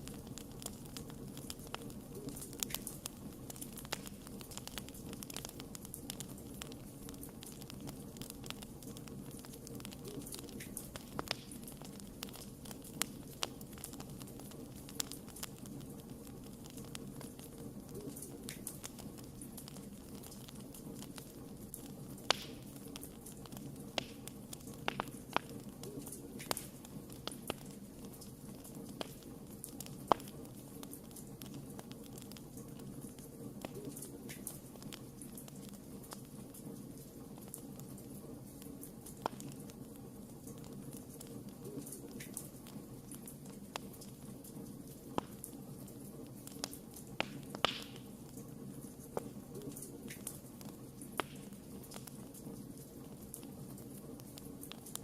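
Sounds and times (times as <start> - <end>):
wood fire crackling: 0.0 - 55.0
loud sharp pop: 47.2 - 48.0.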